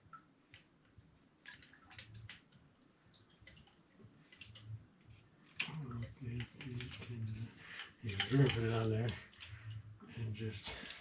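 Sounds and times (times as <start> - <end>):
copper pipe and tools clicking: 3.5 - 9.8, 10.6 - 11.0.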